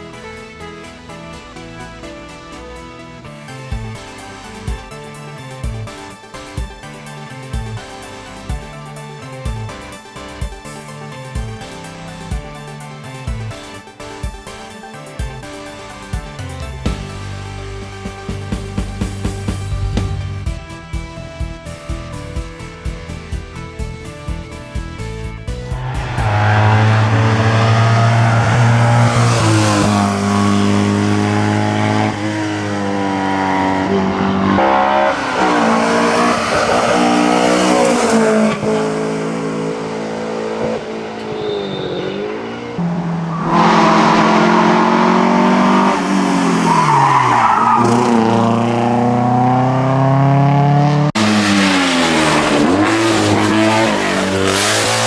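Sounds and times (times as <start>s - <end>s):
race car engines revving: 25.6s - 55.0s.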